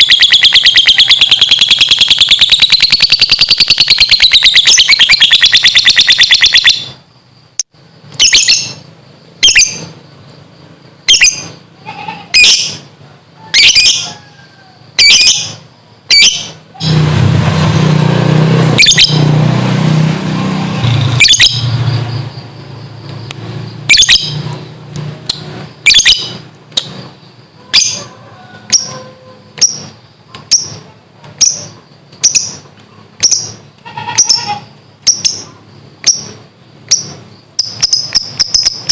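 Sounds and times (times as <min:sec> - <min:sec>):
bird shrill chirps: 0:00.0 - 0:07.0, 0:08.2 - 0:08.8, 0:09.4 - 0:09.9, 0:11.1 - 0:12.9, 0:13.5 - 0:17.0, 0:33.2 - 0:38.9
lovebird chattering trill: 0:00.0 - 0:07.0, 0:08.2 - 0:10.0, 0:11.0 - 0:12.9, 0:23.8 - 0:24.6, 0:25.8 - 0:32.6, 0:33.2 - 0:38.9.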